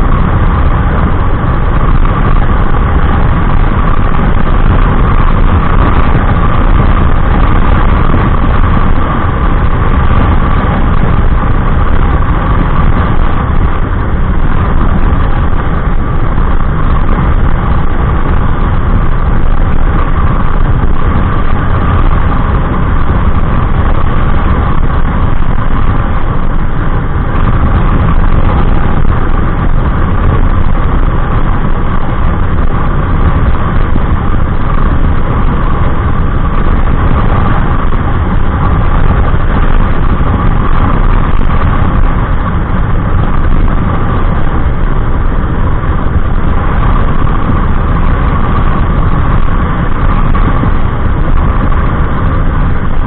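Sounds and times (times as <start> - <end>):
scooter engine at full speed: 0.0 - 53.0.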